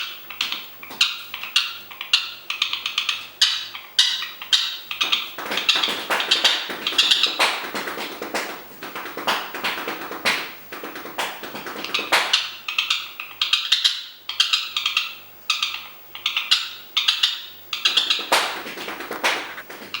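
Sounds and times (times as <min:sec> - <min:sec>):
parrot tapping on hard object: 0:05.0 - 0:12.5, 0:17.9 - 0:20.0.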